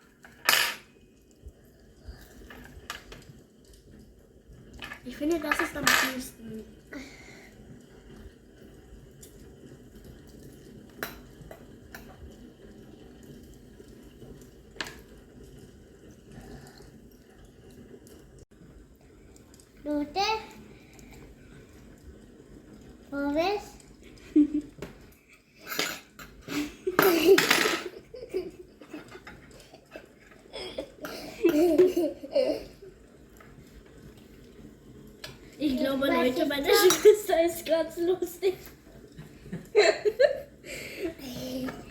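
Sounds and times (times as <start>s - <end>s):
girl laughing and giggling: 26.5s - 32.8s.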